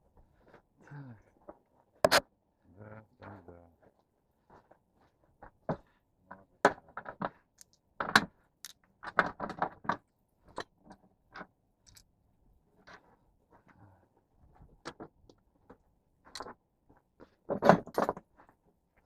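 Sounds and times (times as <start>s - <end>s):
clatter of clicks and knocks: 6.6s - 12.0s, 17.4s - 18.4s.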